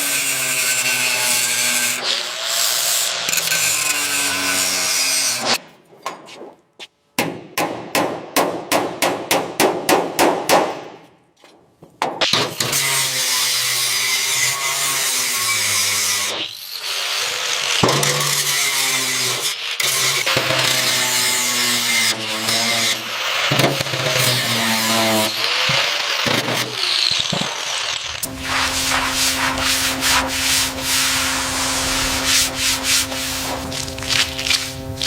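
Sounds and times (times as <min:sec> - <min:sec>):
power tool humming: 0:20.6 - 0:35.0
rhythmic scraping strokes: 0:28.0 - 0:35.0.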